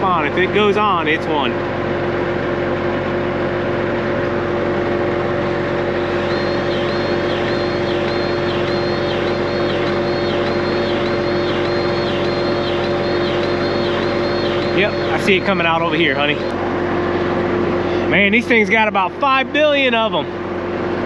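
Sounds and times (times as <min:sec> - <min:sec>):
high pulsing whine: 0:00.0 - 0:21.0
steady machine hum: 0:00.0 - 0:21.0.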